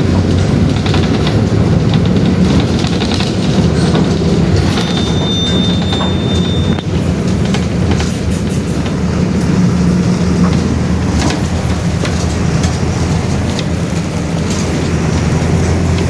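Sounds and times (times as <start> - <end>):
bus body rattling and clicking: 0.0 - 16.0
bus diesel engine running: 0.0 - 16.0.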